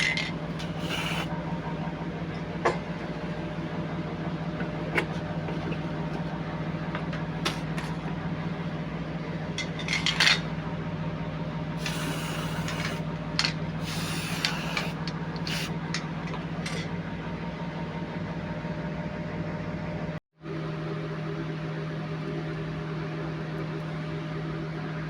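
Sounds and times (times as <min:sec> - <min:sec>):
steady machine hum: 0:00.0 - 0:25.0
short hissing bursts: 0:00.7 - 0:01.3, 0:11.8 - 0:13.0, 0:13.8 - 0:15.8.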